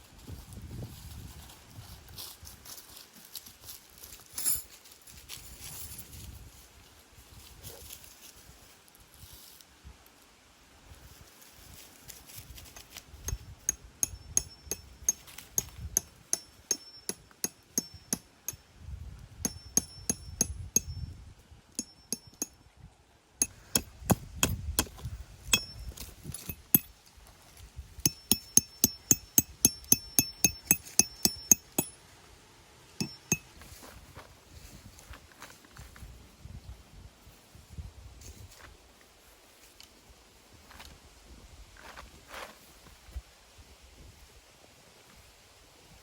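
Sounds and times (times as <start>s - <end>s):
sharp metallic strikes: 19.5s - 21.0s, 25.5s - 26.9s, 28.1s - 32.0s, 33.0s - 33.5s.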